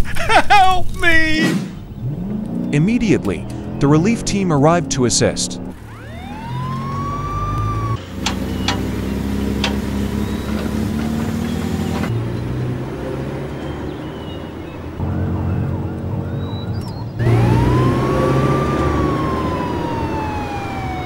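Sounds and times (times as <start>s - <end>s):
siren wail: 5.7s - 8.0s, 14.8s - 21.0s
motor running: 17.2s - 21.0s.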